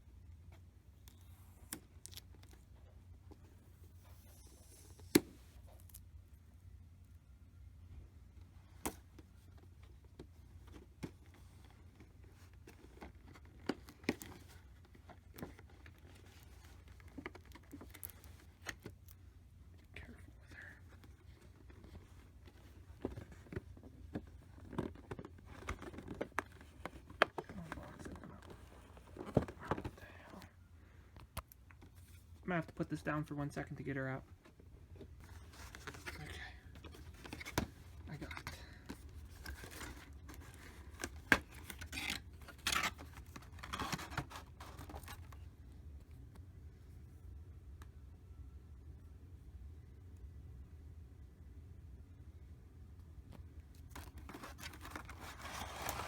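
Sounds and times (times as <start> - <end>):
plastic packaging clicking and rustling: 21.7 - 30.1, 35.3 - 45.4, 53.8 - 56.0
plastic packaging rustling: 53.9 - 56.0
plastic packaging scraping: 54.0 - 56.0.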